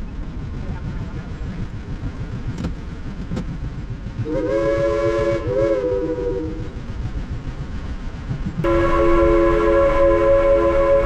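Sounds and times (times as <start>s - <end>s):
steam locomotive chime whistle: 4.3s - 6.6s, 8.6s - 11.0s.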